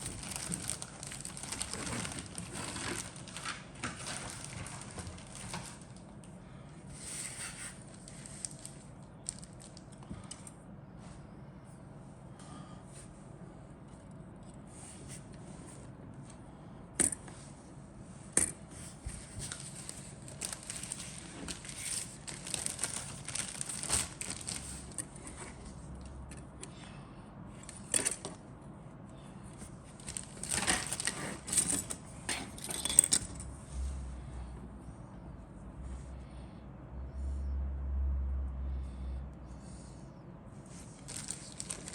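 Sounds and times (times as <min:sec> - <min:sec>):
packaging crinkly rustling: 0:00.0 - 0:06.2, 0:07.0 - 0:10.3, 0:18.9 - 0:26.0, 0:29.6 - 0:33.4, 0:40.7 - 0:41.9.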